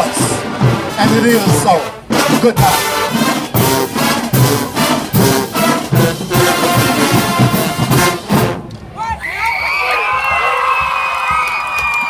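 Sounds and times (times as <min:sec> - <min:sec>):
steady drum hits: 0:00.0 - 0:08.7
marching band brass: 0:00.0 - 0:09.2.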